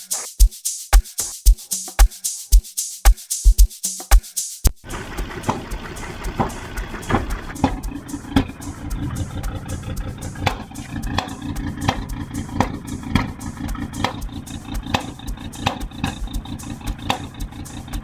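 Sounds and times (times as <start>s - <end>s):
car engine low rumble: 4.9s - 18.0s.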